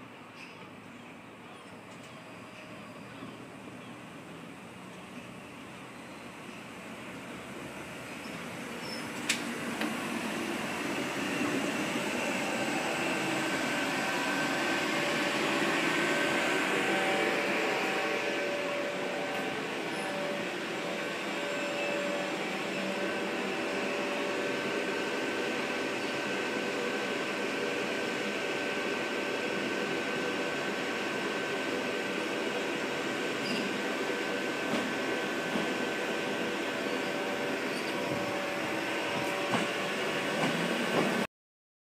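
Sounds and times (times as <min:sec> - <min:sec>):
electric train rushing rumble: 0:00.0 - 0:41.3
traction motor whine: 0:07.9 - 0:41.1.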